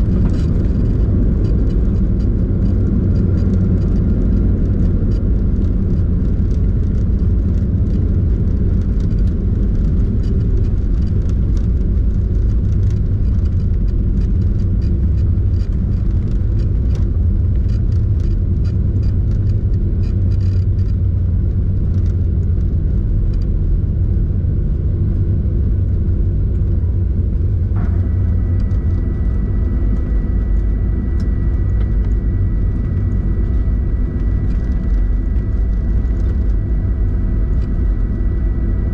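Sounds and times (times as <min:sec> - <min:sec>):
deep rumble of aircraft cabin: 0:00.0 - 0:38.9
steady whining tones: 0:00.0 - 0:38.9.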